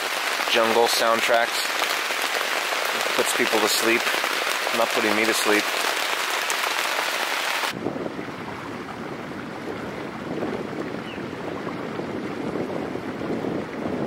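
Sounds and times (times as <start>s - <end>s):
heavy rain hissing: 0.0s - 7.8s.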